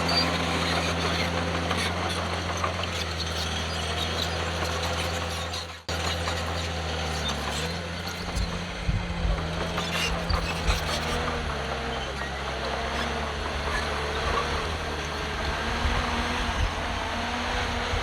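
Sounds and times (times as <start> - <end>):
heavy diesel engine running: 0.0 - 18.0
low thumps and rumbles: 8.2 - 11.9.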